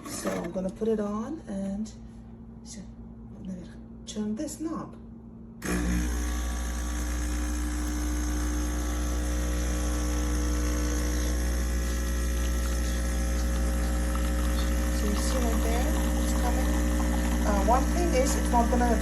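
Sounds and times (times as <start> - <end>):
espresso machine pump humming: 5.6 - 19.0.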